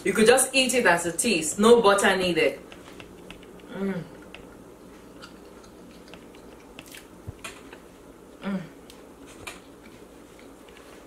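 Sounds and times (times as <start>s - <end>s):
person chewing bread: 2.7s - 11.0s
person humming mm: 3.7s - 4.2s, 8.4s - 9.0s.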